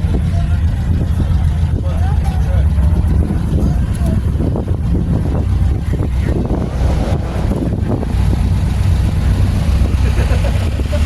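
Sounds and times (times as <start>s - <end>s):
car engines rumbling: 0.0s - 11.0s
wind noise on microphone: 2.9s - 11.0s.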